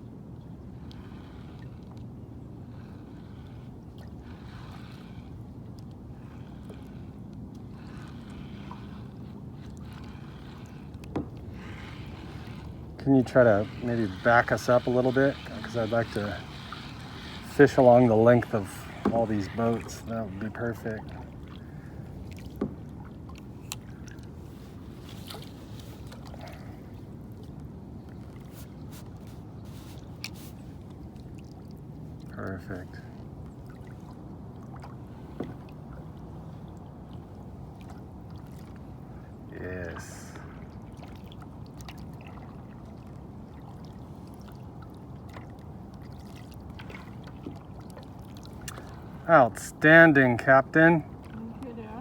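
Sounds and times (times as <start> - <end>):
water moving around kayak: 0.0 - 52.0
paddle knocking against hull: 11.1 - 11.4, 22.4 - 22.9.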